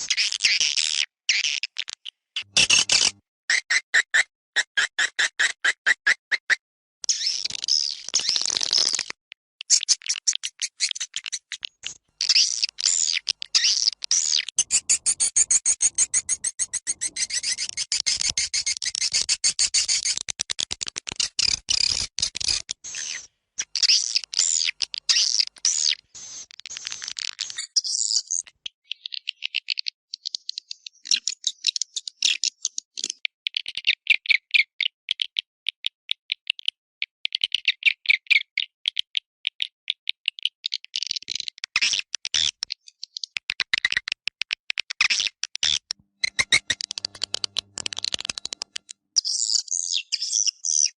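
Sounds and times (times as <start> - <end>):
swiftlet chirps and twitters: 12.2 - 20.0.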